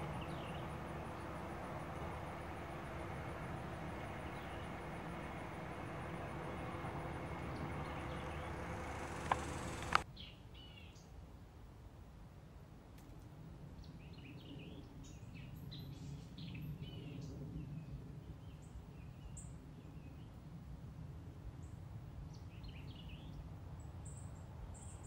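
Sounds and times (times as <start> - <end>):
birds chirping: 0.0 - 10.0
steady low rumble: 0.0 - 10.0.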